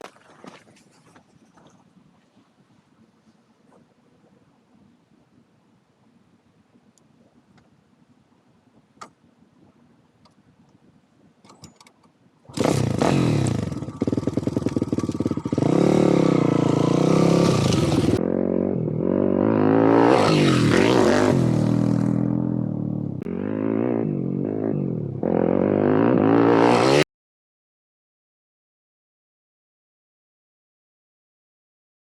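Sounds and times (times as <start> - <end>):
motorbike engine revving hard: 12.5 - 27.0.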